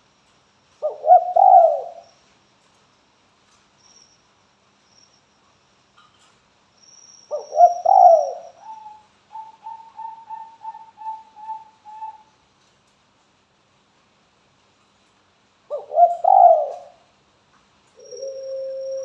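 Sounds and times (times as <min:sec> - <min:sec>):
dove cooing: 0:00.8 - 0:02.1, 0:07.3 - 0:12.3, 0:15.7 - 0:17.0, 0:18.0 - 0:19.0.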